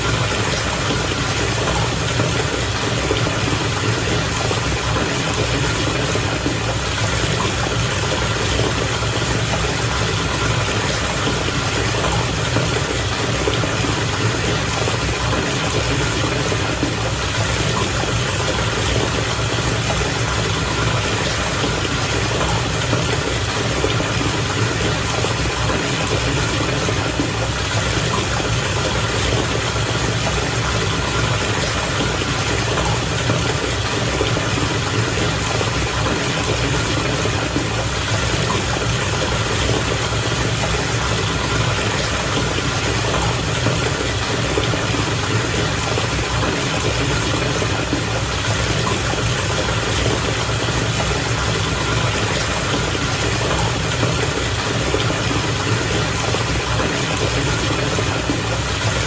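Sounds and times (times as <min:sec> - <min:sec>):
bath water bubbling: 0:00.0 - 0:59.0.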